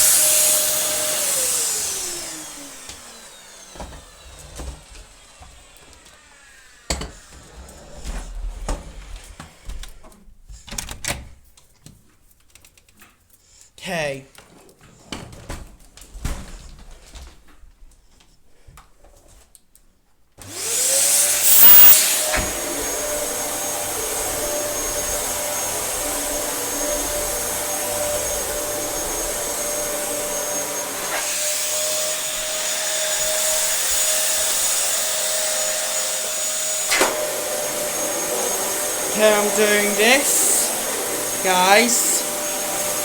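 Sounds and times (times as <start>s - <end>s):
vacuum cleaner motor whine: 0.0s - 9.8s, 20.4s - 43.0s.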